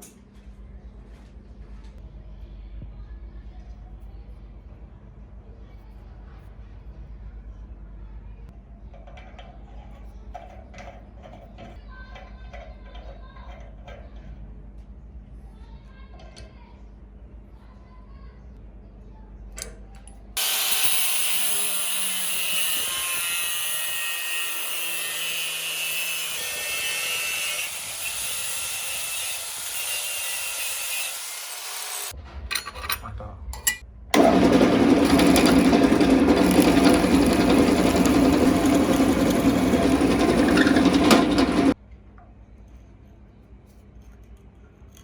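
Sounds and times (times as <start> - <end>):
low-pitched power tool: 20.4 - 32.1, 34.2 - 41.8
power tool running: 20.4 - 32.1, 34.2 - 41.8.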